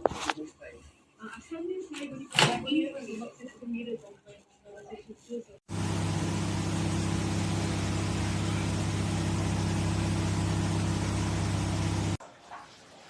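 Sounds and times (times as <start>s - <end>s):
microwave oven running: 5.7s - 12.2s.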